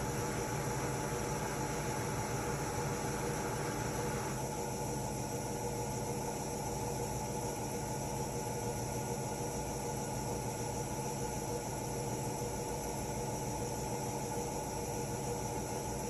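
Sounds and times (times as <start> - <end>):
washing machine running: 0.0 - 4.6.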